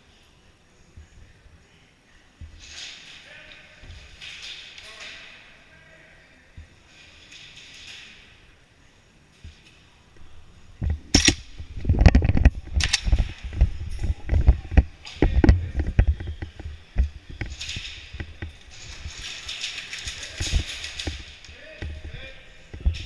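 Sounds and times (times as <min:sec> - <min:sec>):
irregular knocks and thumps: 0:10.8 - 0:19.2.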